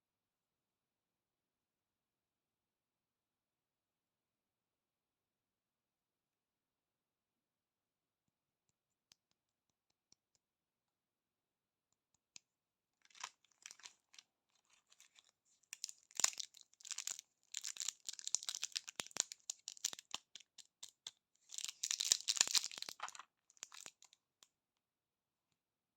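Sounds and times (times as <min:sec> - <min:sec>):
candy wrappers crinkling: 0:13.1 - 0:24.2.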